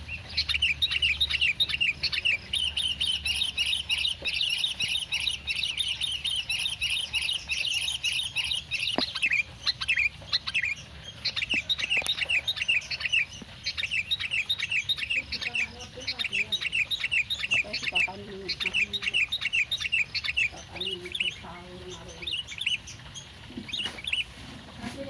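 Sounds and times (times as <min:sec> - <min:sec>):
bird chirping rapidly: 0:00.0 - 0:24.4.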